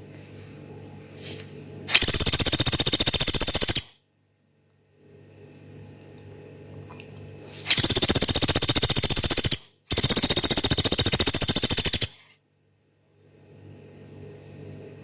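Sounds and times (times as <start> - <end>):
woodpecker rattling trills: 1.9 - 3.9, 7.7 - 12.2.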